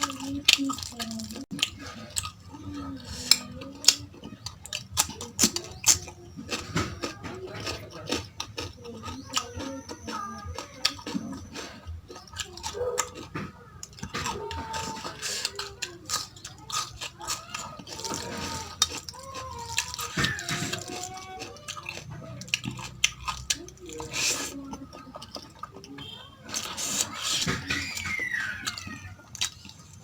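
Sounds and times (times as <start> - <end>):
person chewing: 0.0 - 30.0.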